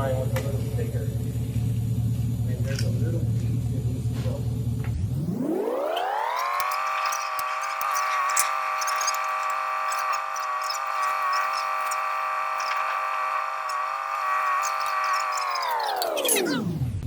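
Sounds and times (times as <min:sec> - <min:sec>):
power tool motor whining: 0:05.1 - 0:16.7.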